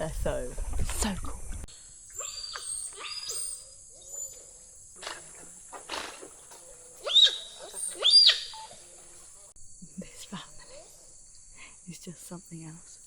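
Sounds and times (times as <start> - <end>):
high insect drone: 1.0 - 13.0
otters calling: 2.1 - 9.5.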